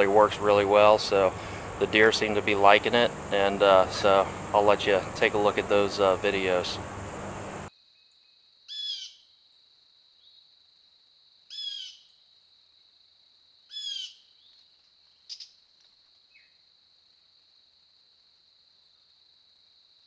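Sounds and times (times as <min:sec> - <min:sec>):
bird calling: 0:00.0 - 0:07.7.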